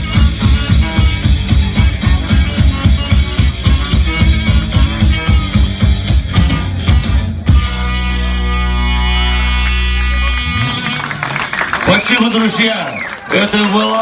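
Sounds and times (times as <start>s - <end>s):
distorted guitars: 0.0s - 11.1s
punk rock band playing: 0.0s - 11.5s.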